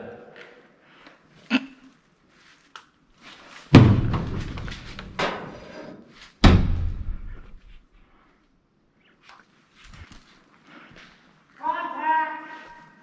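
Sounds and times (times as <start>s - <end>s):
heavy slams: 3.7s - 5.6s, 6.4s - 7.7s.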